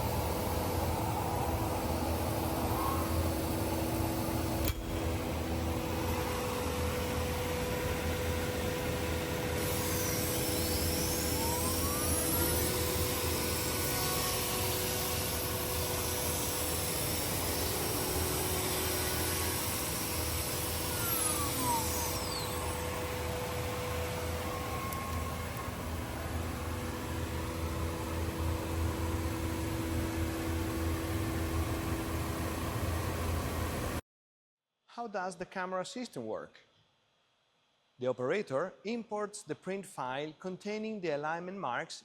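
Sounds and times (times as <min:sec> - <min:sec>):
motors whining: 0:00.0 - 0:32.2
router machine hum and hiss: 0:00.0 - 0:34.0.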